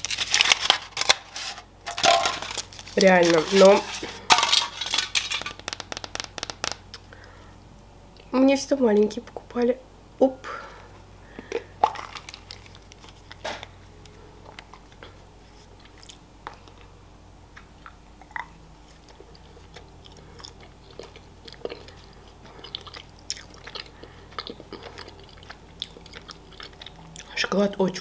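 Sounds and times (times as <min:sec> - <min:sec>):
chewing and biting chocolate: 0:17.6 - 0:27.7.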